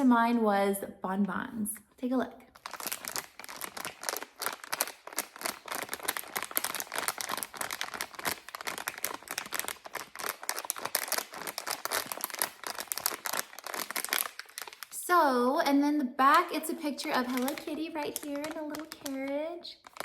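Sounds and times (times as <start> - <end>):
plastic packaging crinkling: 2.5 - 15.1, 16.4 - 20.0.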